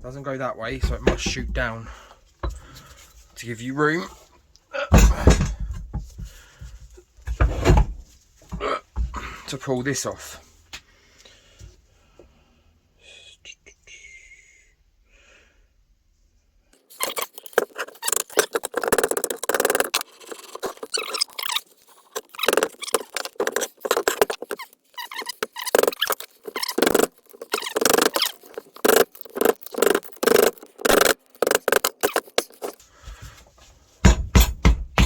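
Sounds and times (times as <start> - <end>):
metal part squeaking and scraping: 16.8 - 32.8.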